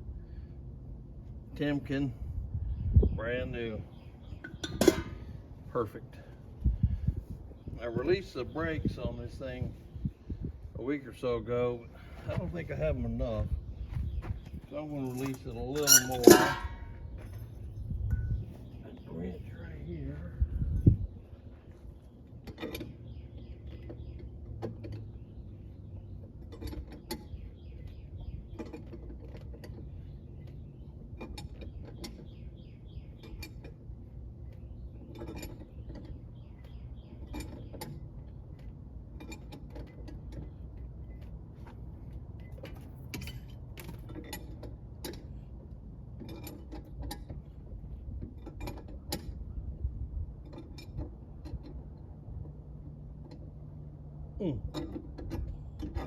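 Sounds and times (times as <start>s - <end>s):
steady low hum: 0.0s - 56.0s
wrench metallic clicks and creaks: 15.0s - 17.5s, 33.1s - 49.5s, 54.6s - 56.0s.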